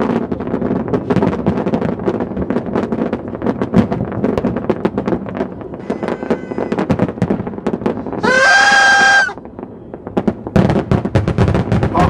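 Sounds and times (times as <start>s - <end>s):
fireworks popping and crackling: 0.0s - 12.0s
loud high whistle: 8.2s - 9.4s.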